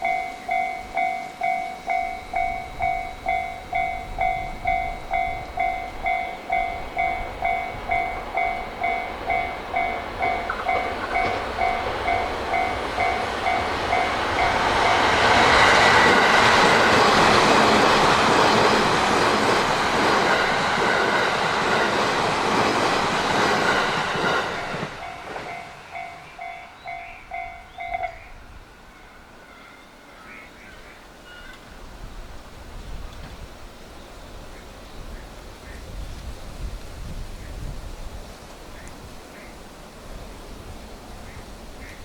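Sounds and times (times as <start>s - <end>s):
level crossing warning bell: 0.0s - 22.3s, 23.2s - 30.2s
electric train passing: 0.0s - 38.7s.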